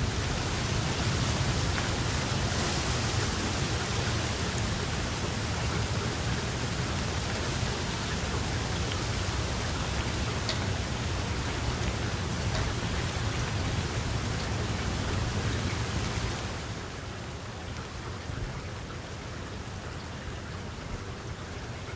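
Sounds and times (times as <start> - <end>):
raindrop ticks: 0.0 - 16.7
heavy rain: 0.0 - 21.9.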